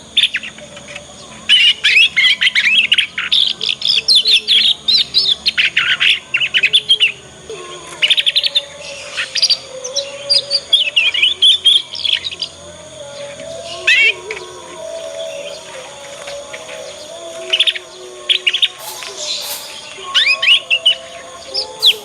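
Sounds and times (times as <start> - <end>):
canary twittering: 9.2 - 22.0.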